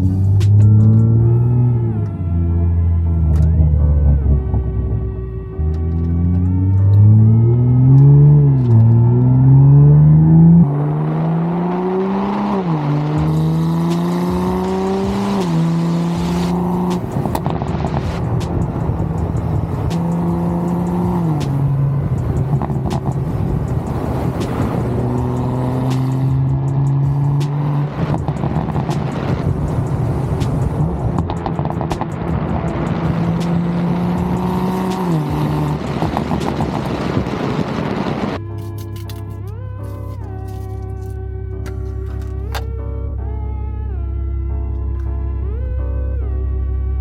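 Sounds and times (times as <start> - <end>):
car engine accelerating: 0.0 - 38.6
exhaust pops and crackles: 16.3 - 42.8.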